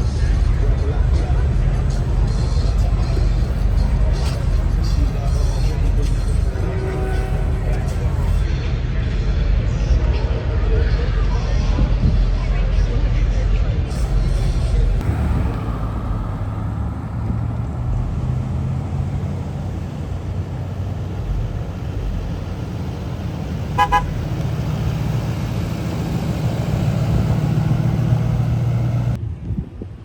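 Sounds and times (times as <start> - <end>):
vehicles rumbling: 0.0 - 10.0, 13.2 - 30.0
car horn short beeps: 22.0 - 25.2.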